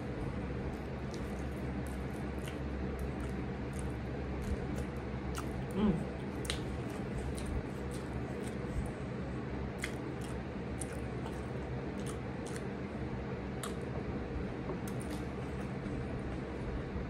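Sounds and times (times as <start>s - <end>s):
chewing chili pepper: 0.0s - 14.0s, 14.7s - 16.5s
low background hum: 0.0s - 17.0s
wet mouth clicks: 13.6s - 13.8s.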